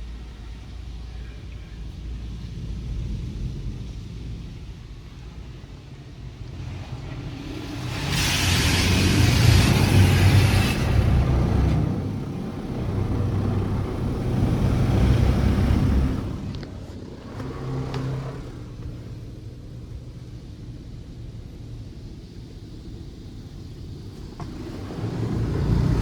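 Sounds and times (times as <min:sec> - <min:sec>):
low rumble: 0:00.0 - 0:26.0
water spray hiss: 0:06.4 - 0:19.2.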